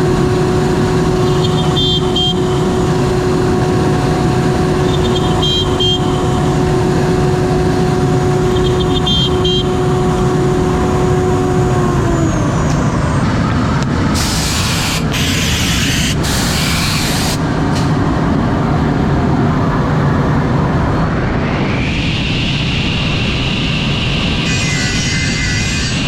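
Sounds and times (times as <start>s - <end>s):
spindle whine: 0.0s - 16.3s
loud hissing bursts: 14.2s - 17.4s.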